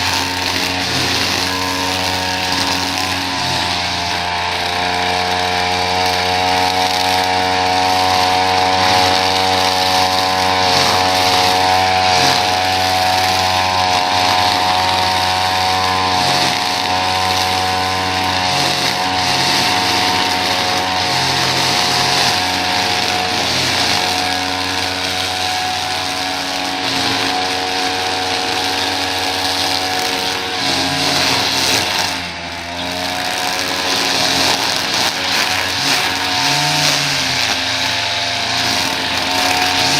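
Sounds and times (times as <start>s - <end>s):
small petrol engine running: 0.0s - 39.9s.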